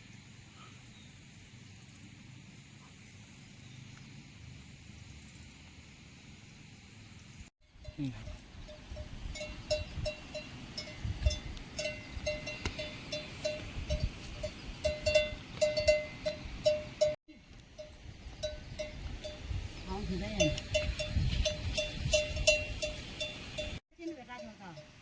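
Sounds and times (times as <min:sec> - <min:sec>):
livestock bells clanking: 0:07.8 - 0:17.2, 0:17.8 - 0:25.0
light jingling: 0:07.8 - 0:25.0.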